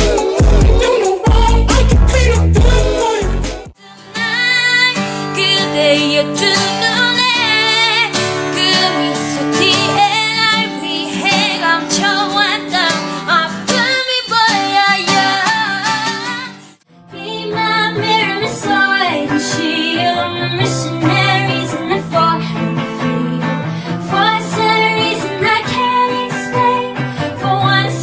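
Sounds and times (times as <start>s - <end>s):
heavy bass beat: 0.0s - 3.7s
guitar chords: 0.0s - 28.0s
woman singing pop melody: 0.0s - 28.0s.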